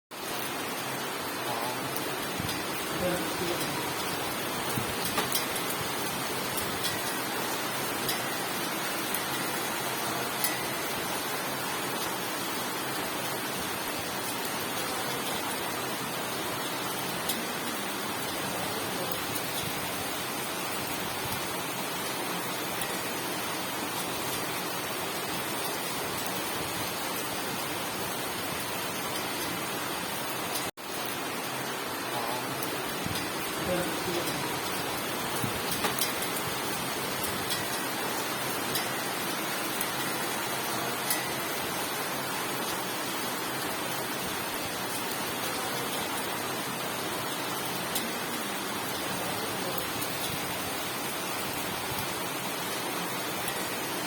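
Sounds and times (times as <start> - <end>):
heavy rain hissing: 0.4 - 10.8, 11.4 - 22.9, 29.5 - 54.0
raindrop taps: 4.7 - 5.6, 35.4 - 36.2.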